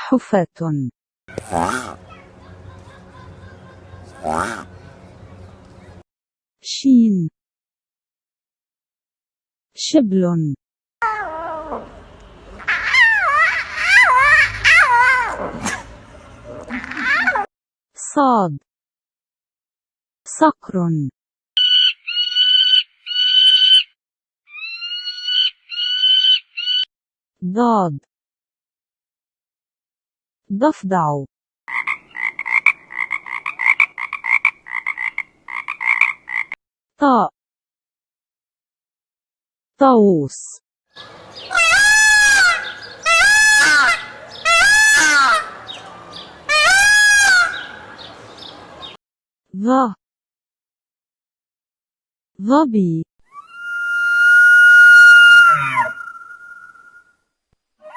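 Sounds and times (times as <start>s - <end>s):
peacock calling: 1.3s - 4.9s, 11.1s - 15.4s, 21.6s - 23.9s, 24.5s - 26.9s, 41.0s - 49.0s, 53.3s - 57.1s
falcon screaming: 12.6s - 15.4s, 21.6s - 23.9s, 24.5s - 26.9s, 41.0s - 48.1s, 53.3s - 57.1s.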